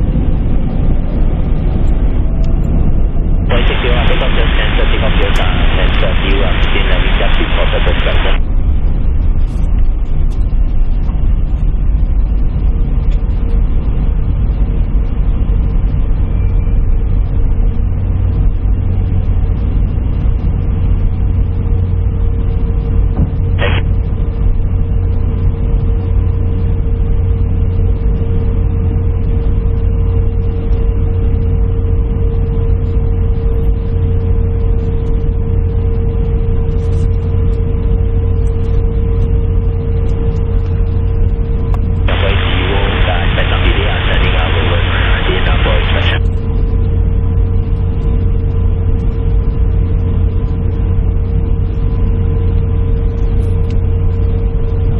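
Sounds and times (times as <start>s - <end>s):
airliner cabin rumble: 0.0s - 54.9s
steady hum: 0.0s - 54.9s.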